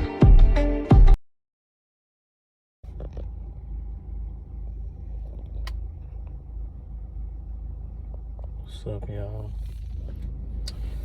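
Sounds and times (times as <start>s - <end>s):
low rumble inside car cabin: 2.8s - 11.0s.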